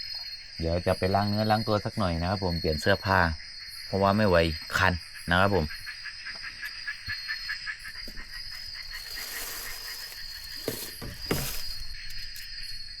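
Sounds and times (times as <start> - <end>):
insects droning: 0.0 - 13.0
rapid pulsing insect call: 0.0 - 13.0.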